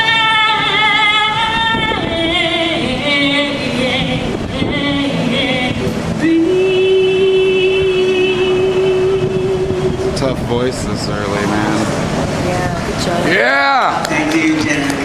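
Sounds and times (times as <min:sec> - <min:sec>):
woman singing without words: 0:00.0 - 0:10.2.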